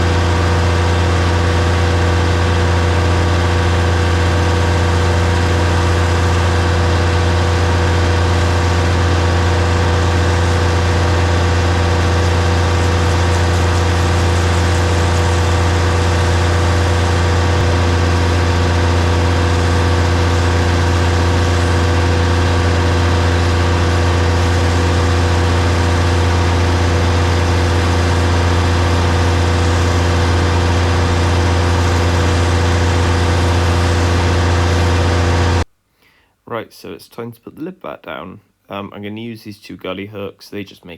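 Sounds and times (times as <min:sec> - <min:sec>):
diesel engine running steadily: 0:00.0 - 0:35.7.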